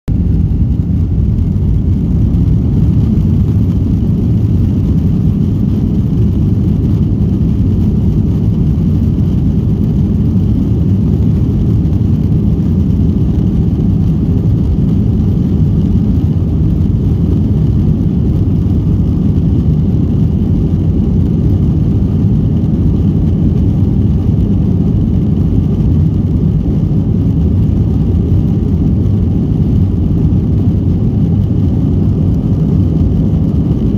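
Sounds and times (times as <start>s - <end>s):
jet engines roaring: 0.1s - 33.9s.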